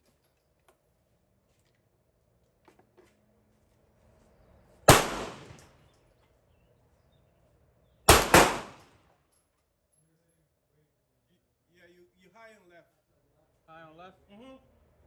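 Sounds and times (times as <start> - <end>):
pistol shots: 4.9 - 5.6, 8.1 - 8.9.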